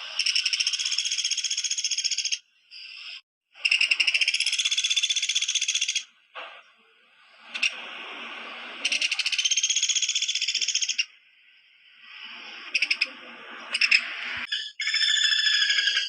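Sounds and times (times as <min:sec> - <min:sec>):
woodpecker trilled rattle: 0:00.1 - 0:02.4, 0:03.6 - 0:06.1, 0:08.8 - 0:11.1, 0:13.7 - 0:16.0.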